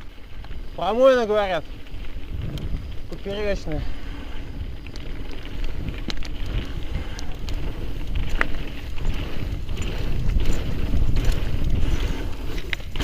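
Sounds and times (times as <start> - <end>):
bike rolling on scree: 0.0 - 13.0
wind buffeting microphone: 0.0 - 13.0
stones clicking and rattling: 4.8 - 13.0.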